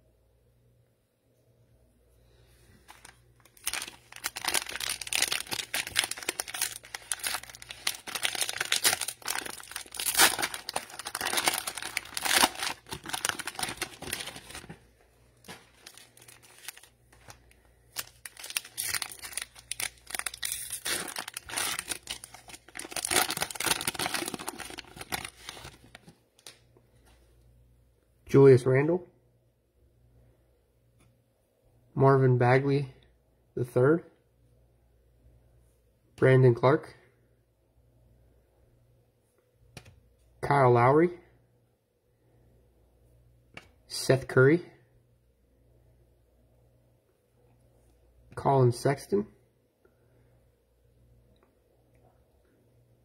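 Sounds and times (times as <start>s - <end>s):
cellophane crinkling and tearing: 2.9s - 14.8s, 15.4s - 26.6s.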